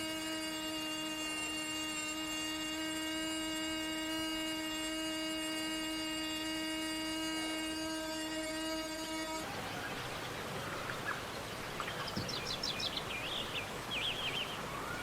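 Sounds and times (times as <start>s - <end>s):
steady electric hum: 0.0s - 15.0s.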